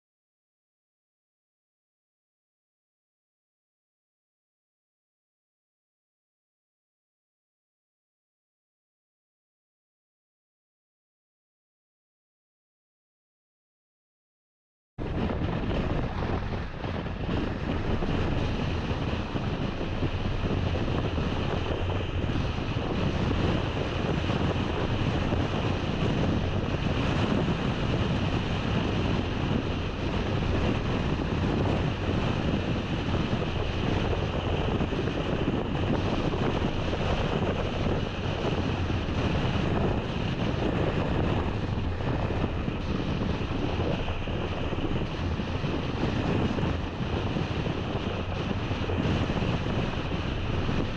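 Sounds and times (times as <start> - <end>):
car wind and road noise: 15.0 - 50.9.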